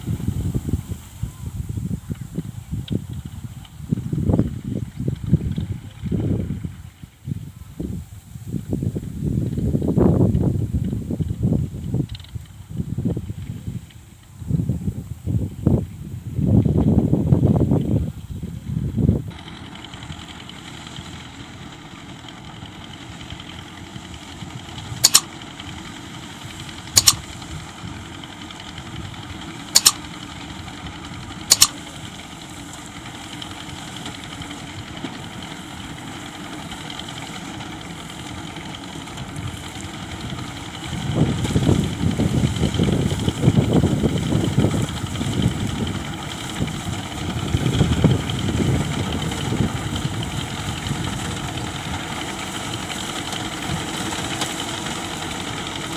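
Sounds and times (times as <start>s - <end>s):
tractor diesel engine running: 0.0s - 55.9s
sharp clicks: 25.0s - 25.3s, 27.0s - 27.3s, 29.8s - 30.0s, 31.5s - 31.8s.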